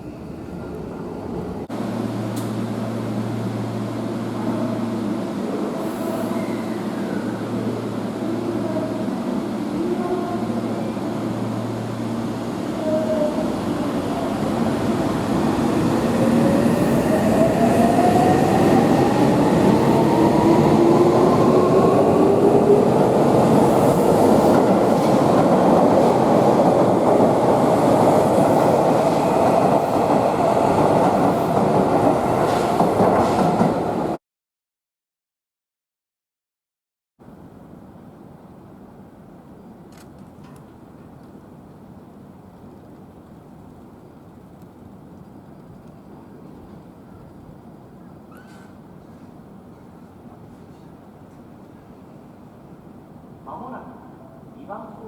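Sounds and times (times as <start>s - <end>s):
train wheels on rails: 13.4s - 34.2s.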